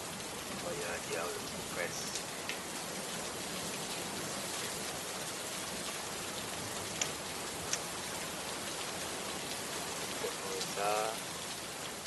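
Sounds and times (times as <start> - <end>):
rain hissing: 0.0 - 12.0
water drop ticks: 7.0 - 7.9.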